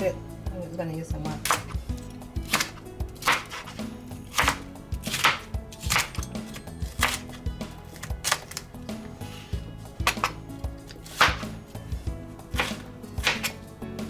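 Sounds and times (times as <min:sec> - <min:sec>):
knife chopping on cutting board: 0:01.4 - 0:08.6, 0:10.0 - 0:11.8, 0:12.5 - 0:13.6.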